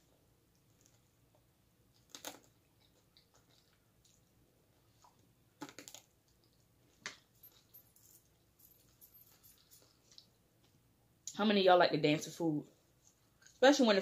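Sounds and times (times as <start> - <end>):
person chewing: 0.5 - 7.6.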